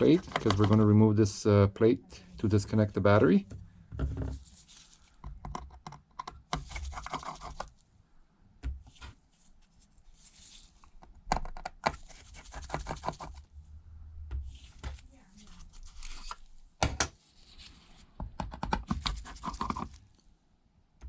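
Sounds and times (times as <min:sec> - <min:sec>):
screwdriver clicking and scraping: 0:00.0 - 0:00.8.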